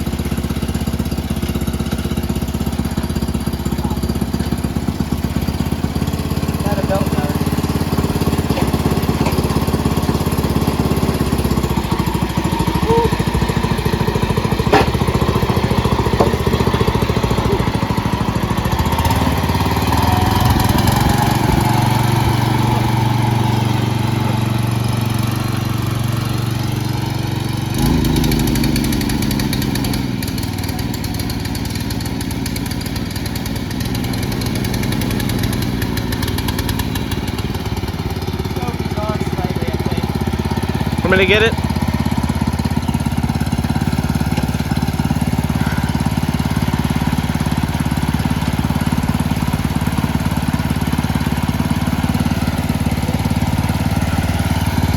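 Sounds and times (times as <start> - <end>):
lawn tractor engine running: 0.0 - 54.9
sharp knock: 14.7 - 15.2.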